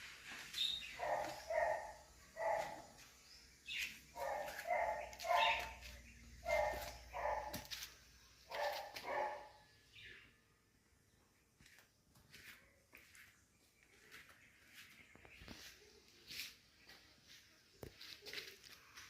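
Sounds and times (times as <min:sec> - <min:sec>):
dog barking: 0:01.0 - 0:02.9, 0:04.2 - 0:07.7, 0:08.5 - 0:09.6.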